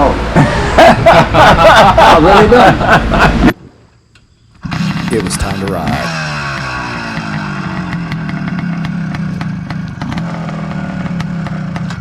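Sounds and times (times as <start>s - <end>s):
motorcycle engine running: 4.6s - 12.0s.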